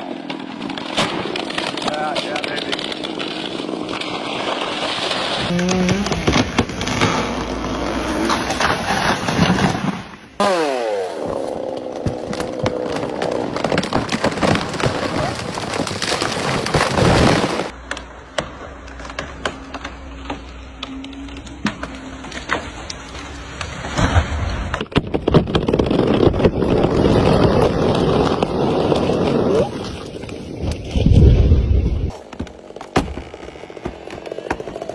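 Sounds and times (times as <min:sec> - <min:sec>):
chainsaw cutting wood: 0:00.0 - 0:17.8, 0:25.5 - 0:30.1, 0:32.1 - 0:34.9
sharp cracks: 0:00.0 - 0:31.1.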